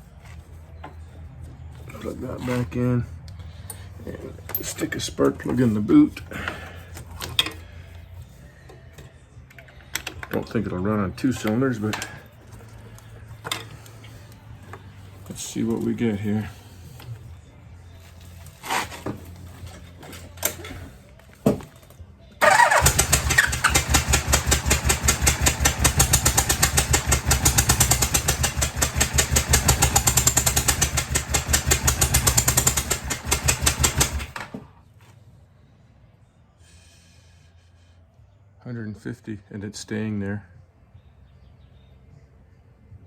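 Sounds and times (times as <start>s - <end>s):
engine cranking on starter: 22.4s - 34.7s.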